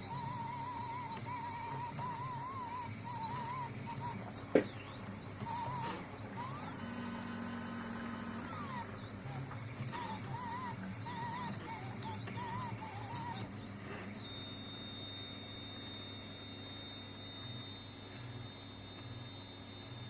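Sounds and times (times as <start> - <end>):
stepper motors whining: 0.0 - 15.2.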